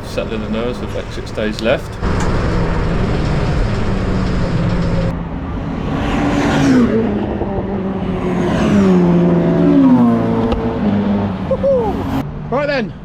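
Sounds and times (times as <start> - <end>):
race car engine: 0.0 - 13.0.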